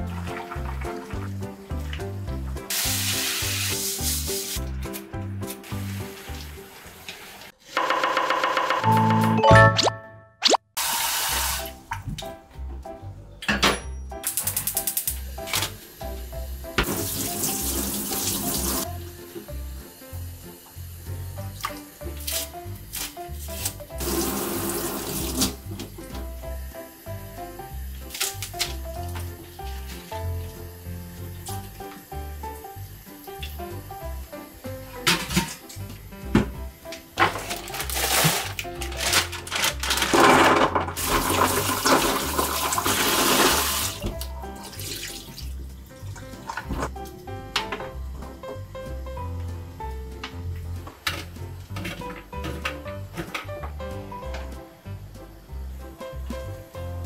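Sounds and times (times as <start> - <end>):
tap water running into sink: 0.0 - 4.9, 5.6 - 7.5, 10.8 - 12.3, 16.7 - 19.5, 21.4 - 26.3, 37.2 - 48.4.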